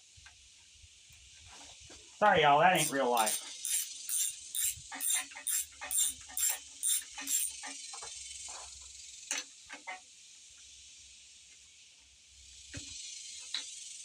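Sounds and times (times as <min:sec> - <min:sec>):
insects hissing: 0:02.4 - 0:09.3, 0:10.3 - 0:14.0
ratchet wrench clicking: 0:02.8 - 0:07.6.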